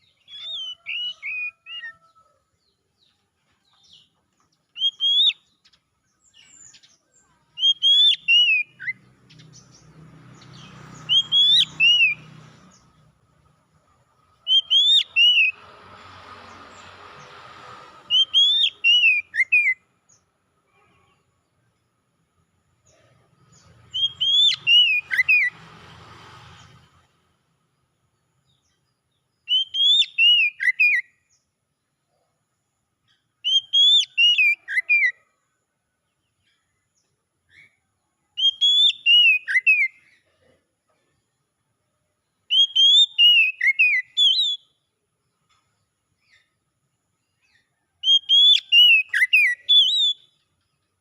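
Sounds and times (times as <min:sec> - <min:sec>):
magpie-robin singing: 0:00.0 - 0:01.9, 0:03.8 - 0:12.9, 0:14.4 - 0:15.6, 0:18.1 - 0:20.2, 0:23.5 - 0:25.6, 0:29.4 - 0:31.1, 0:33.2 - 0:35.2, 0:38.4 - 0:40.2, 0:42.4 - 0:44.8, 0:47.4 - 0:50.4.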